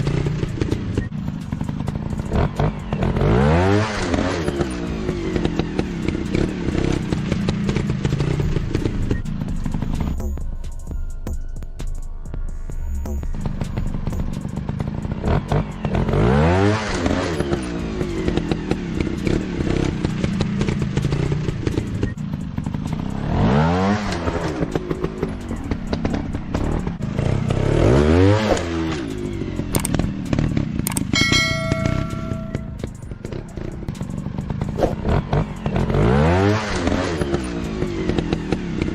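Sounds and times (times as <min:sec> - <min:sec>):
dirt bike engine revving: 0:00.0 - 0:10.2, 0:13.3 - 0:38.9
bell-like ringing tone: 0:31.1 - 0:33.1.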